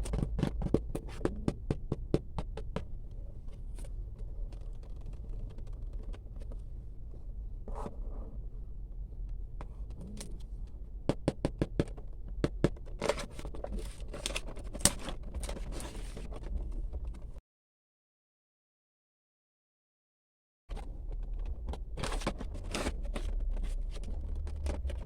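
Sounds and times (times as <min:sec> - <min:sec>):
plastic parts tapping and scraping: 0:00.0 - 0:06.7, 0:09.2 - 0:17.4, 0:20.7 - 0:25.0.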